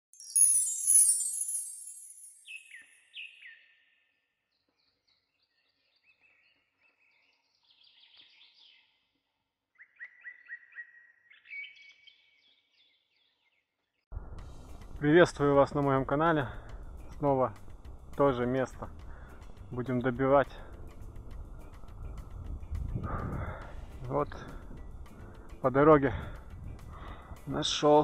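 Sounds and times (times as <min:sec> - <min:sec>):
high chiming jingle: 0:00.1 - 0:03.1
sharp bird notes and trill: 0:00.1 - 0:04.2
songbird whistles: 0:00.2 - 0:03.8, 0:09.8 - 0:12.2
faint bird chirps: 0:00.2 - 0:13.9.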